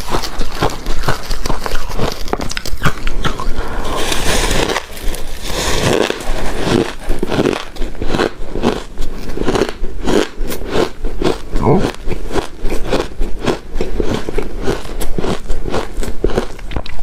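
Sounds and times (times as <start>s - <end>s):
chewing and crunching ice: 0.0s - 17.0s.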